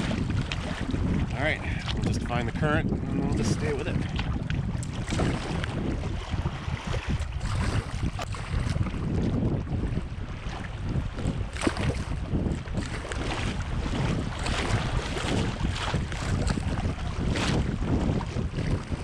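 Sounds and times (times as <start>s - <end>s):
short water splashes: 0.0s - 19.0s
wind buffeting microphone: 0.0s - 19.0s
fast river water rushing: 12.8s - 16.8s.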